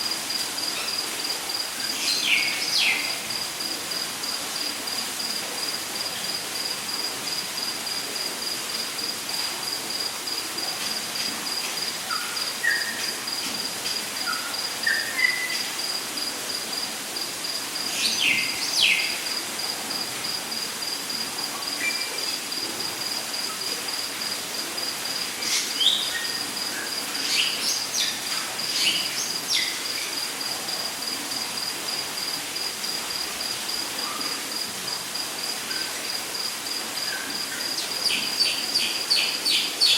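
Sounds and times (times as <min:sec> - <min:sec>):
constant hiss: 0:00.0 - 0:39.9
insect trilling: 0:14.2 - 0:16.0.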